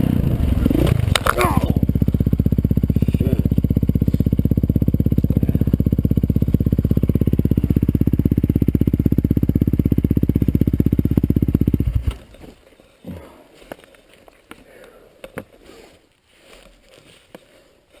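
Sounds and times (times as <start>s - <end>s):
dirt bike engine at low revs: 0.0s - 13.8s.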